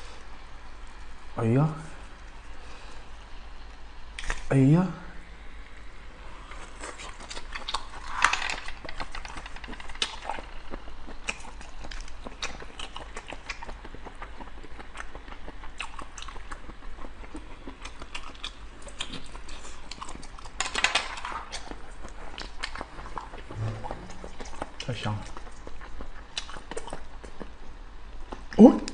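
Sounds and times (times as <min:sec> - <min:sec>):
wet chewing mouth clicks: 0:08.9 - 0:20.6, 0:21.5 - 0:27.6.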